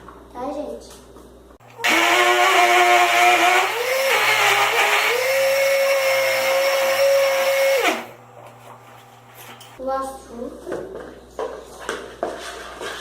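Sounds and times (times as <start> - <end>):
blender motor whining: 1.6 - 8.2.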